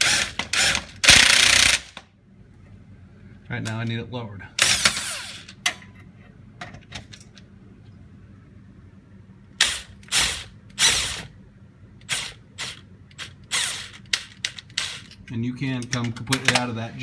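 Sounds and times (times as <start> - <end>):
impact wrench bursts: 0.0 - 2.0, 4.6 - 5.6, 9.6 - 11.3, 12.0 - 15.2.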